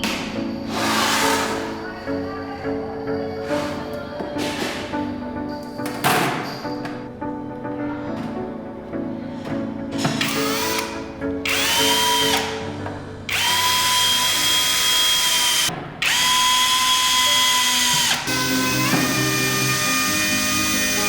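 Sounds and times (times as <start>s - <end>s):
background music: 0.0s - 21.0s
small electric drill whining: 10.2s - 12.6s, 13.3s - 21.0s.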